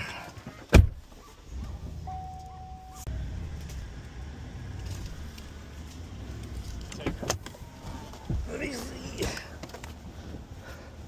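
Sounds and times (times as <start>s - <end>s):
truck door shutting: 0.6s - 1.0s
truck engine rumbling: 1.1s - 11.0s
electronic beep: 2.1s - 3.1s.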